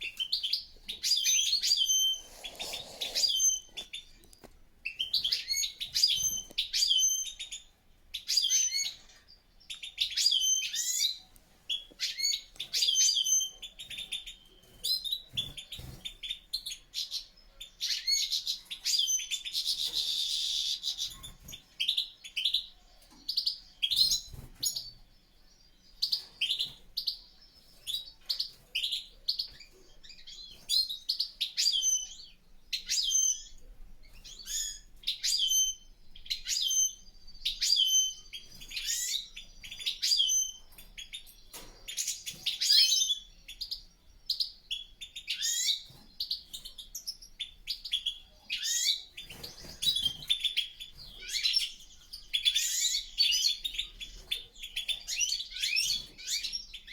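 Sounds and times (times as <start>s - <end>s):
goldfinches twittering and singing: 12.0s - 56.9s.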